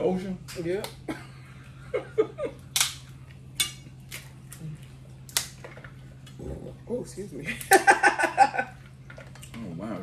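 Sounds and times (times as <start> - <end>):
crab shells cracking: 2.7 - 6.4.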